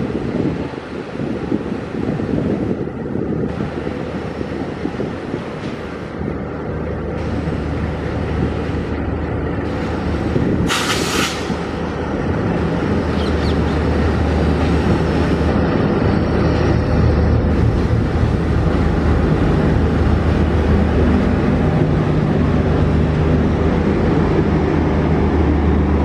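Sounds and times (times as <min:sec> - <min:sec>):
diesel locomotive engine drone: 0:00.0 - 0:26.0
train wheels rumbling on rails: 0:00.0 - 0:26.0
brief hiss: 0:10.7 - 0:11.6.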